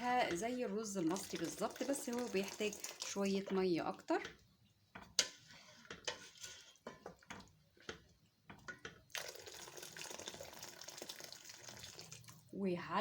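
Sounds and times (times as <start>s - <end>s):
water pouring into pot: 0.8s - 3.4s, 9.1s - 12.5s.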